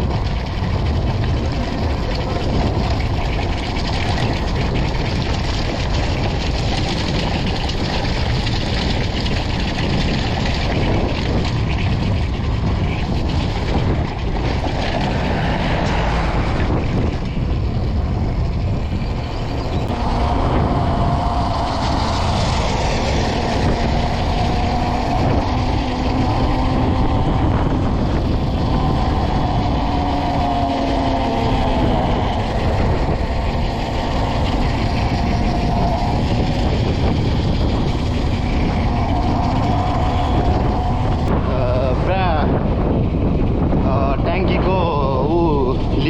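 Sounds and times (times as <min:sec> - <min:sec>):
faint wavering hum: 0:00.0 - 0:43.8
dirt bike engine rumble: 0:00.0 - 0:46.0
wind buffeting microphone: 0:00.0 - 0:46.0.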